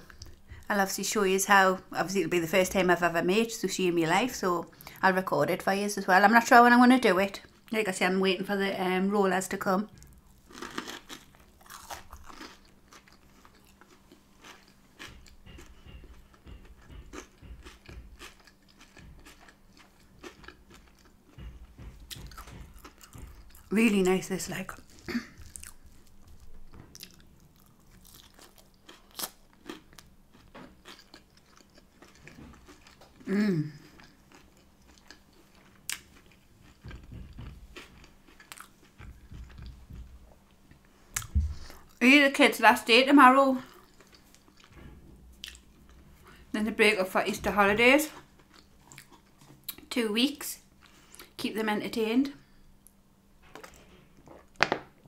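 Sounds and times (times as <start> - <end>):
person biting and chewing food: 9.9 - 23.7, 24.8 - 40.0, 48.2 - 49.8
crunching bite: 10.4 - 21.4.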